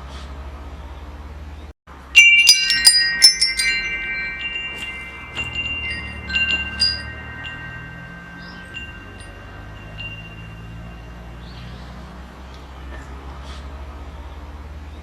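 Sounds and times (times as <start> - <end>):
metal wind chimes ringing: 2.0 - 12.2.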